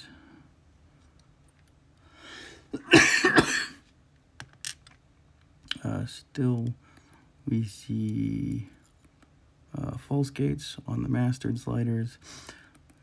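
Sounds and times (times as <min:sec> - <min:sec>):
person breathing in: 0:02.0 - 0:02.7
person coughing: 0:02.7 - 0:03.8.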